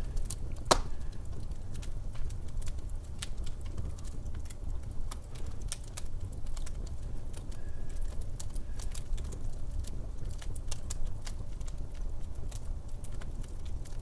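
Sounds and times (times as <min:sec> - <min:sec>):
low steady rumble: 0:00.0 - 0:14.0
wood fire crackling: 0:00.0 - 0:14.0.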